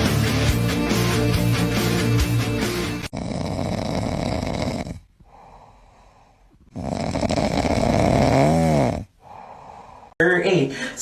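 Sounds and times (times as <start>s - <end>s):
loud snoring: 2.9s - 5.6s, 6.6s - 9.6s.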